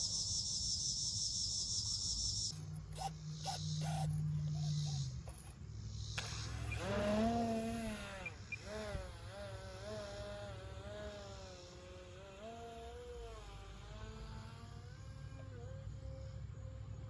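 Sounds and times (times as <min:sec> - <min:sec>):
model plane motor whining: 0:02.4 - 0:05.6, 0:06.2 - 0:16.3.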